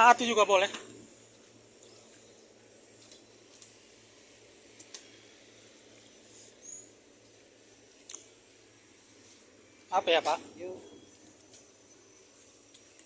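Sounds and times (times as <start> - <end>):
steady low hum: 0.0 - 13.0
faint clicks: 4.8 - 5.2.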